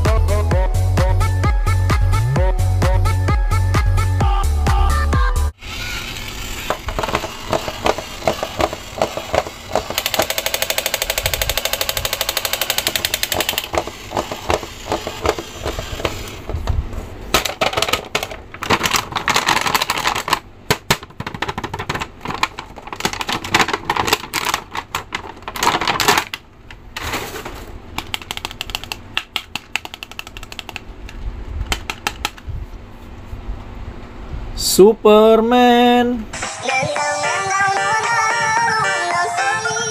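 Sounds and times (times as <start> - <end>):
fast even clattering: 6.6 - 16.6
plastic packaging crinkling: 17.4 - 27.7.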